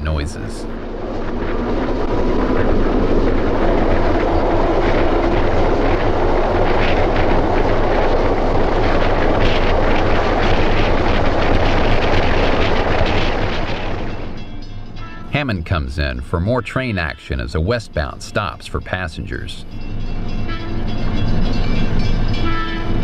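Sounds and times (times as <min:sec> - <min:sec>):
wheels rumbling on rail: 0:00.0 - 0:23.0
rattles and clatter from car: 0:01.4 - 0:15.0.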